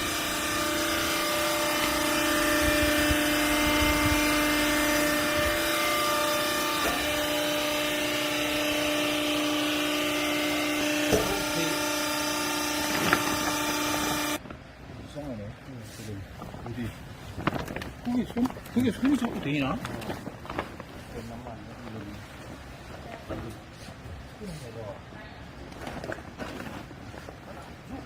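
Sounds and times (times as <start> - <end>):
motor and pump whining: 0.0 - 14.5.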